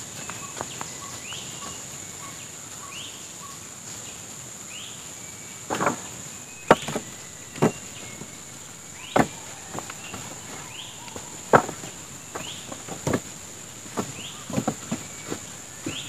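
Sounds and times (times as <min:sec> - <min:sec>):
insects droning: 0:00.0 - 0:16.0
chopping strikes on wood: 0:05.7 - 0:08.3, 0:09.0 - 0:13.3, 0:13.9 - 0:16.0.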